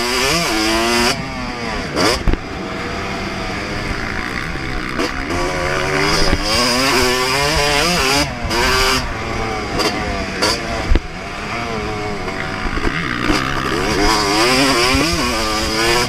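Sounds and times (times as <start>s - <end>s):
motocross bike engine revving: 0.0s - 16.0s.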